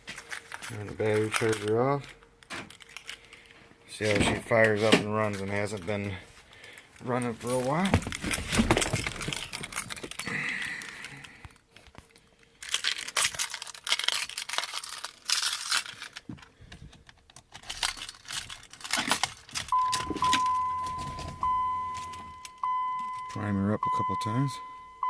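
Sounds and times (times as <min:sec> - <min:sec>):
rustling: 0:00.0 - 0:22.5
keys jingling: 0:00.1 - 0:03.4, 0:07.0 - 0:11.2, 0:12.6 - 0:16.2, 0:17.5 - 0:23.4
steady electronic beep: 0:19.7 - 0:25.0.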